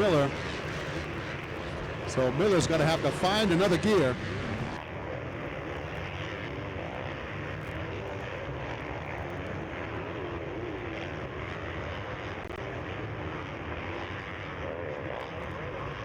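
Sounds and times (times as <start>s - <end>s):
motocross bike engines revving: 0.0s - 4.8s
steady low drone: 0.0s - 4.8s.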